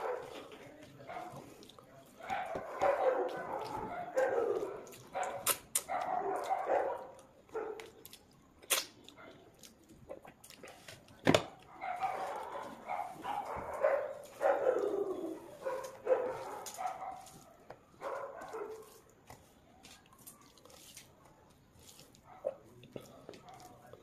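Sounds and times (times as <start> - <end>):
wet smacking chewing: 0.0 - 24.0
sharp mouth clicks: 5.3 - 5.9, 8.6 - 9.2.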